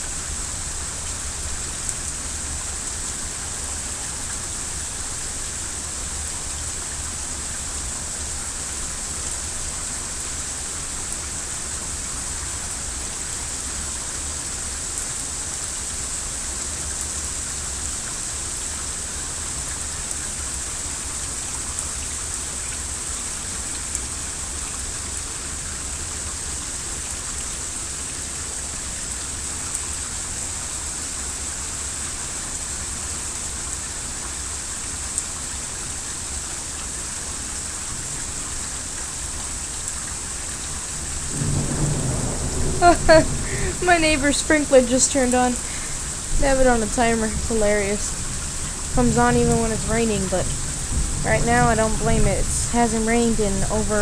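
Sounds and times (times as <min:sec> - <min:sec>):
heavy rain falling: 0:00.0 - 0:54.0
raindrop ticks: 0:39.2 - 0:54.0.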